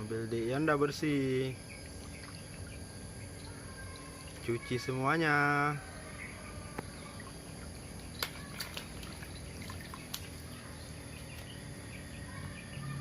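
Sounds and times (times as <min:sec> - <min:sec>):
water trickling and splashing: 0:01.8 - 0:02.8, 0:03.8 - 0:04.8, 0:07.0 - 0:11.7.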